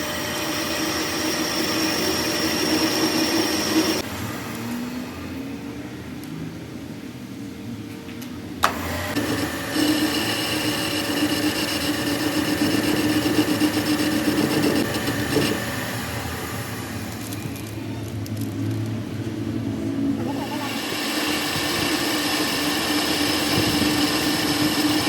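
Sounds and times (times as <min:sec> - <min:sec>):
power tool grinding metal: 0:00.0 - 0:04.8, 0:08.6 - 0:17.7, 0:20.2 - 0:25.0.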